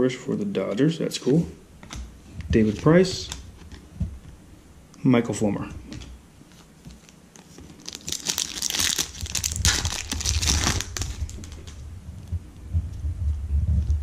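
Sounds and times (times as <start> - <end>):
wrapper crinkling being torn open: 7.0 - 11.8.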